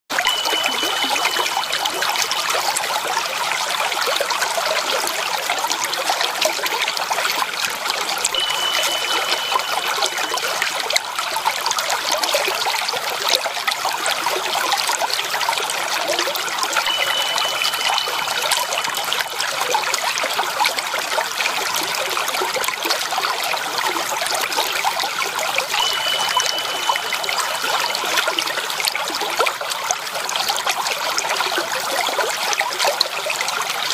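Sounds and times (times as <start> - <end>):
thin high tone: 0.1 - 3.8, 8.2 - 11.6, 16.0 - 20.7, 25.4 - 29.5
water trickling: 0.1 - 33.9.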